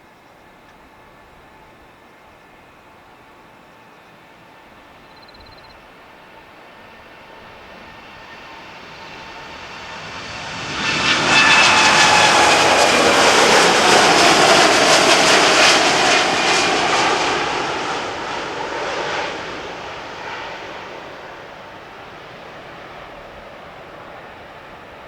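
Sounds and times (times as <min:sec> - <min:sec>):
jet engine whine: 0:00.0 - 0:25.0
jet engine roar: 0:05.8 - 0:25.0.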